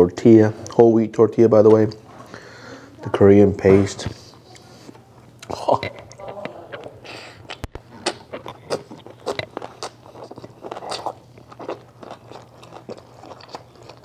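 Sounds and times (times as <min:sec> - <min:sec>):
person chewing crunchy food: 0:04.8 - 0:14.0.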